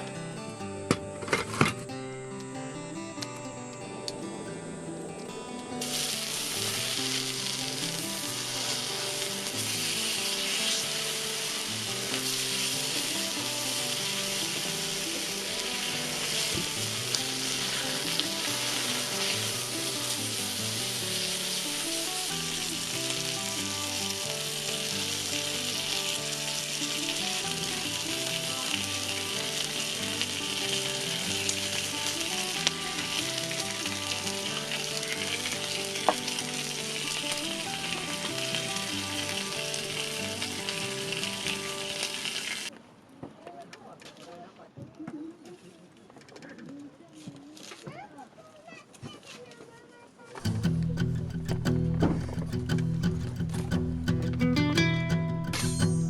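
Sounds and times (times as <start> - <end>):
quiet background music: 0.0 - 42.7
meat sizzling in a pan: 5.8 - 42.7.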